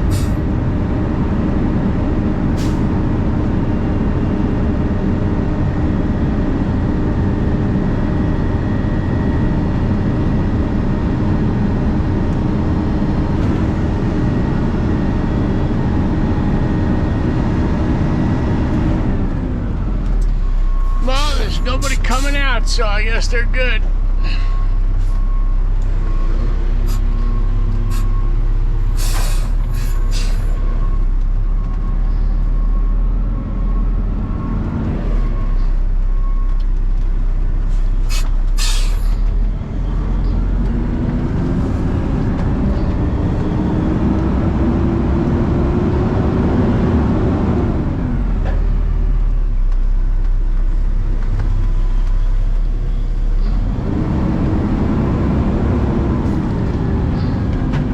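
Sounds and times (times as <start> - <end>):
truck diesel engine running: 0.0 - 57.9
short air hisses: 38.1 - 39.1.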